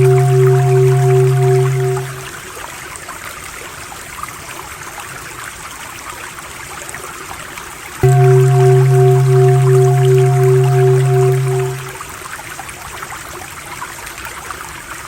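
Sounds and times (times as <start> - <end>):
loud droning tone: 0.0 - 2.4, 8.0 - 12.0
stream water trickling: 0.0 - 12.3.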